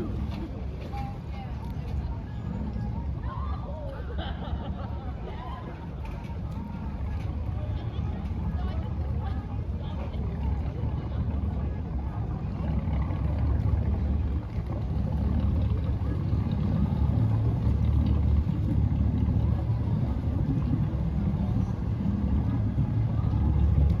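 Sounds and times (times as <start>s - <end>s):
motorboat engine rumbling: 0.0s - 24.0s.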